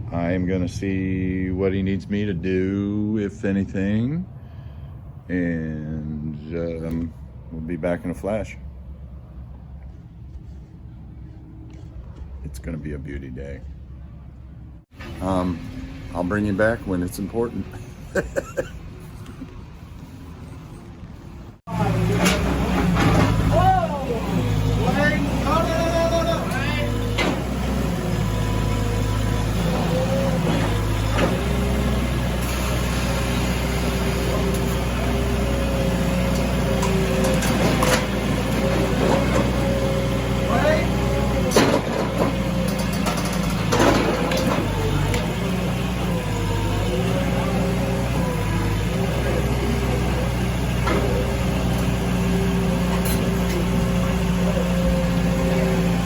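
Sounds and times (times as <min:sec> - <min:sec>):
heavy engine running: 0:13.4 - 0:56.0.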